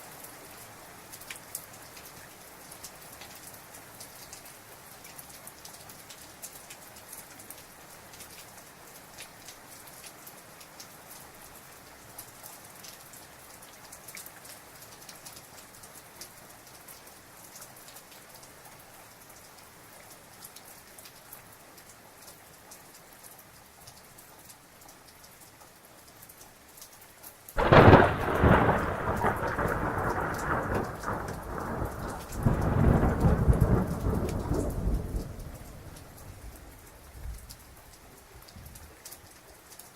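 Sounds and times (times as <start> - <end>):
heavy rain pattering: 0.0 - 39.9
thunder rumbling: 27.6 - 36.6.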